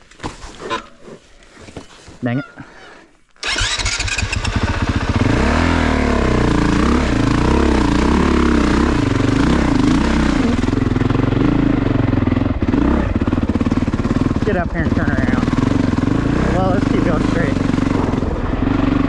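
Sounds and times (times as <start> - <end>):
dirt bike engine revving: 3.4 - 19.0.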